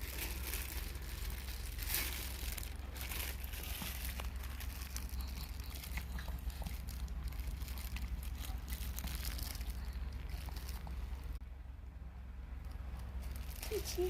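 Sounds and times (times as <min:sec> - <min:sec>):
soft crinkling: 0:00.0 - 0:11.4, 0:12.5 - 0:14.0
steady low hum: 0:00.0 - 0:14.0.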